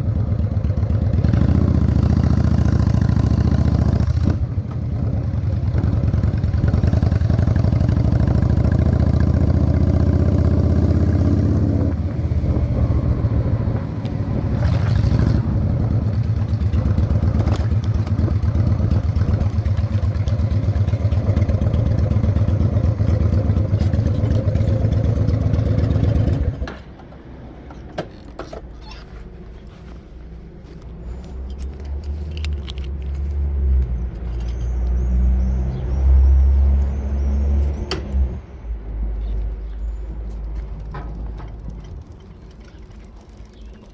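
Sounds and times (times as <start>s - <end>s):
motorcycle engine running: 0.0s - 26.8s
low engine rumble: 0.0s - 43.9s
light clicks and clatters: 26.3s - 35.0s, 39.2s - 43.9s.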